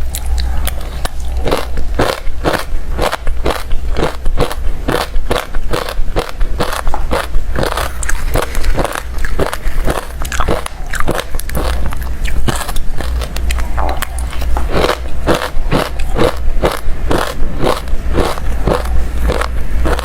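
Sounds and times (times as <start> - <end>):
crushed ice being chewed: 0.0 - 20.0.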